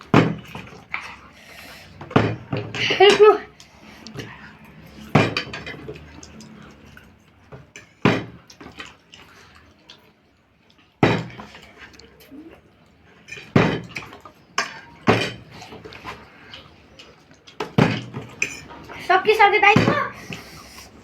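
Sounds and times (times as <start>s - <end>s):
dishes clattering: 2.0s - 3.5s, 4.2s - 6.7s, 7.5s - 8.9s, 13.2s - 16.2s, 17.6s - 19.0s.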